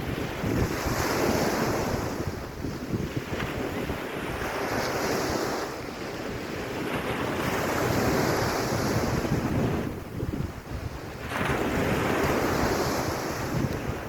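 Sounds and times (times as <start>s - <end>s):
surf washing onto beach: 0.0s - 14.0s
wind rumbling on microphone: 0.0s - 14.0s.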